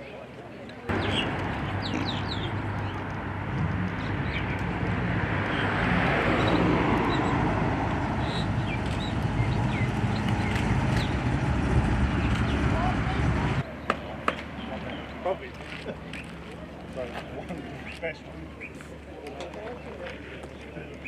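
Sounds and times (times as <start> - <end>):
vehicle engine running: 0.9 - 13.6
birds chirping: 0.9 - 21.0.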